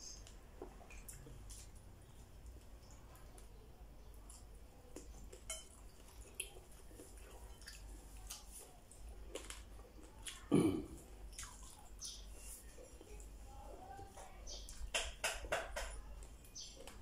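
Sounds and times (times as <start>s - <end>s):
man chewing with wet smacks: 0.1s - 3.5s, 4.1s - 13.4s, 16.2s - 17.0s.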